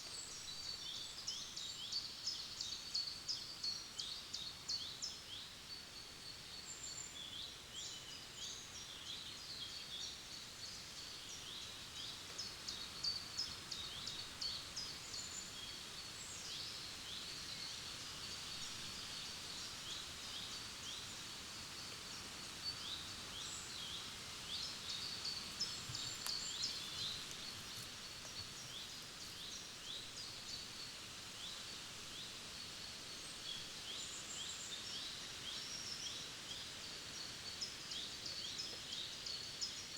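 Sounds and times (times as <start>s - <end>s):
faint background hiss: 0.0s - 39.9s
small birds chirping: 22.6s - 39.9s.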